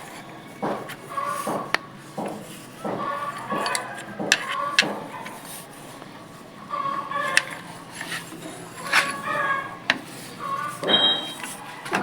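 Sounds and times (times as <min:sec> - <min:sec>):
hand tools clicking on metal: 0:00.0 - 0:06.1, 0:07.2 - 0:12.0.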